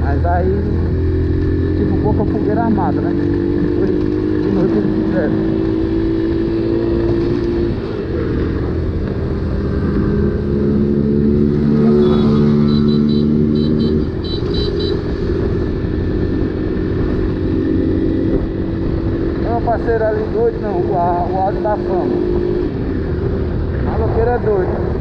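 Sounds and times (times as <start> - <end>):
motorcycle engine running: 0.0 - 25.0
wind and road noise: 0.0 - 25.0
high beeps: 11.8 - 15.0.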